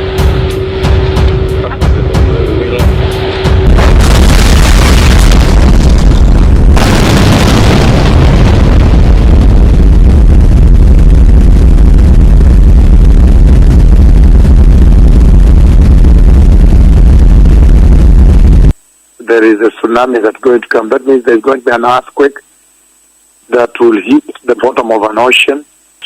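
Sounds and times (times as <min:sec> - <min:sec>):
low rumbling roar: 0:00.0 - 0:18.7.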